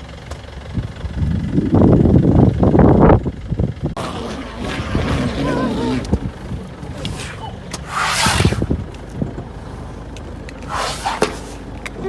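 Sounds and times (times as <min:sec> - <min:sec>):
jeep engine humming: 0:00.0 - 0:12.0
scraping or rustling noise: 0:07.0 - 0:08.8, 0:10.6 - 0:11.7.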